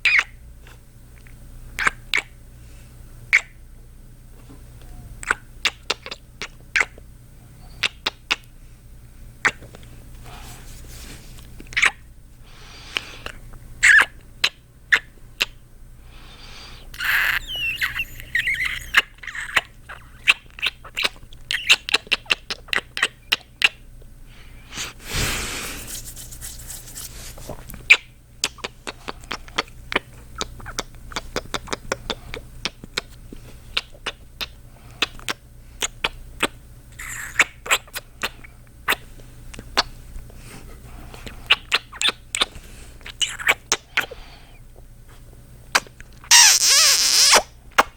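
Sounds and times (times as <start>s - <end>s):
wet kissing sounds: 1.8s - 2.4s, 5.2s - 7.0s, 7.8s - 8.4s, 11.7s - 12.0s, 12.9s - 15.6s, 16.9s - 23.8s, 27.8s - 39.9s, 41.2s - 44.2s, 45.7s - 47.9s
breathy sound: 16.1s - 19.0s, 24.3s - 26.0s.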